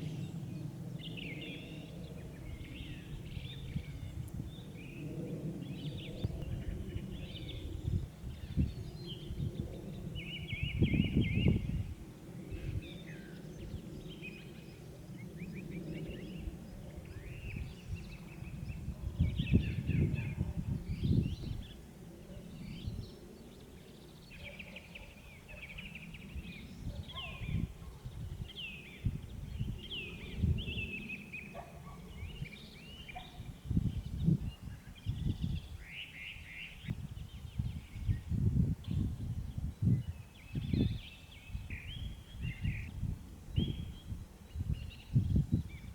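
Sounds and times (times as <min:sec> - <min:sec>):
small birds chirping and trilling: 0:12.6 - 0:45.9.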